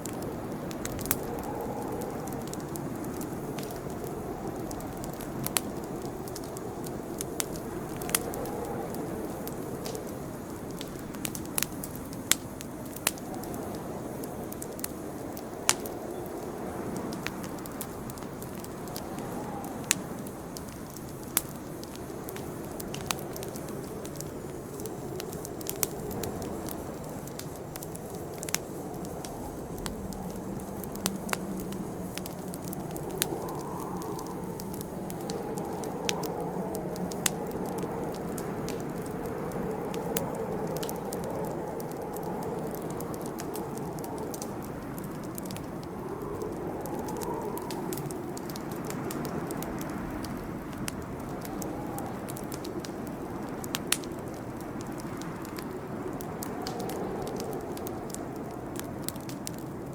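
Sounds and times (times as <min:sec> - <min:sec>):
campfire popping and crackling: 0:00.0 - 0:59.9
flames rushing: 0:00.0 - 0:59.9.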